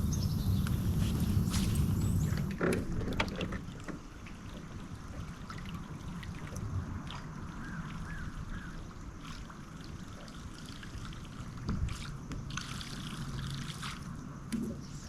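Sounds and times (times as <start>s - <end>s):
steady low hum: 0.0s - 2.6s
water lapping against boat: 0.0s - 15.0s.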